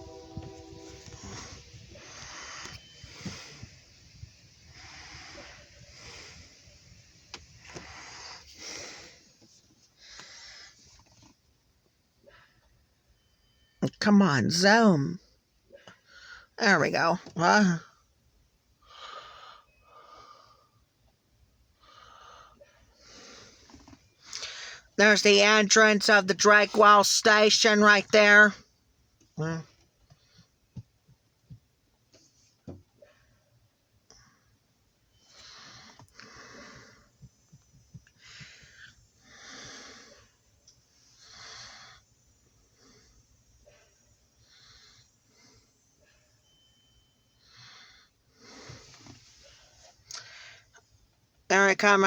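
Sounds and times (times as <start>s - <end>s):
soft wheezy breathing: 0.0s - 11.3s, 18.8s - 21.0s, 21.7s - 25.0s, 34.1s - 51.0s
person breathing noisily: 1.1s - 3.9s, 4.7s - 6.8s, 35.3s - 37.3s, 38.2s - 40.4s.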